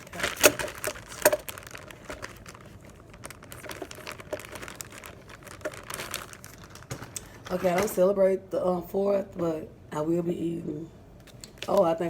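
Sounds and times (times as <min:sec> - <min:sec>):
packaging crinkling: 0:00.0 - 0:08.1.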